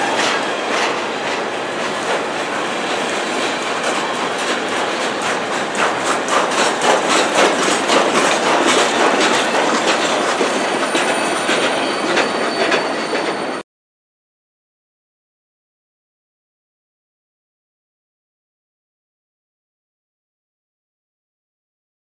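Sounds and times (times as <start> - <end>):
train wheels clicking over rails: 0.0 - 13.6
faint high squeal: 10.6 - 13.6.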